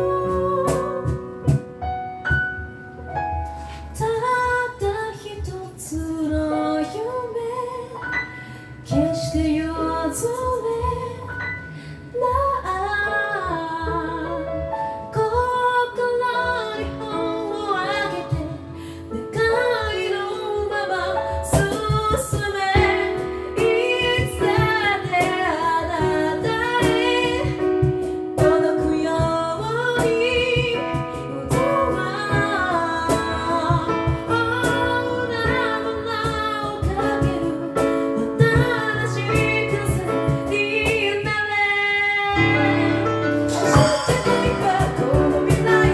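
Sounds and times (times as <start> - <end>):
woman singing lead melody: 0.0 - 1.9, 3.9 - 45.9
vocal percussion beat: 0.0 - 2.5, 21.5 - 41.2, 43.4 - 45.9
sung bass line: 0.0 - 6.5, 42.1 - 45.9
backing vocal harmonies: 15.9 - 41.0, 42.3 - 45.9.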